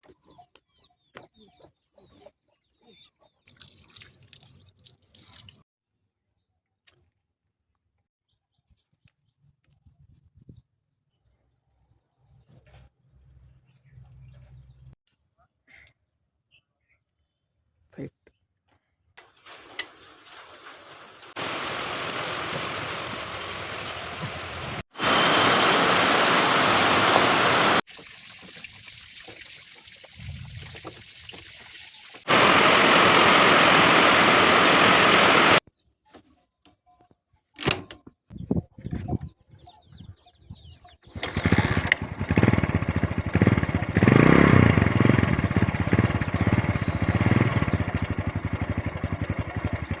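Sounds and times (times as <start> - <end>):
single-cylinder engine running: 19.2 - 27.8, 32.2 - 35.6, 41.2 - 50.0.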